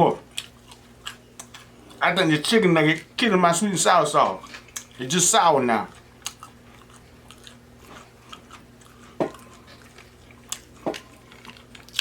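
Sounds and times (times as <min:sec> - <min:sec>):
chewing and biting: 0:00.2 - 0:02.0, 0:05.8 - 0:12.0.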